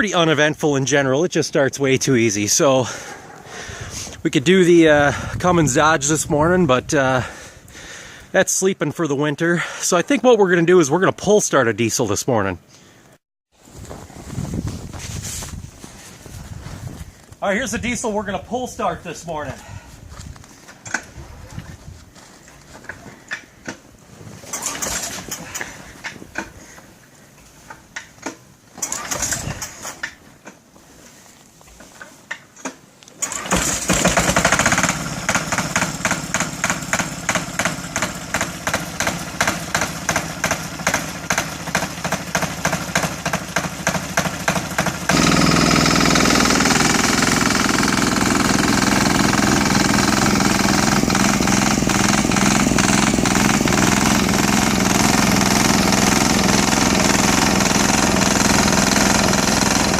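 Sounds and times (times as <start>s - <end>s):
snowblower engine chugging: 24.5s - 25.6s, 28.8s - 29.8s, 33.2s - 59.9s.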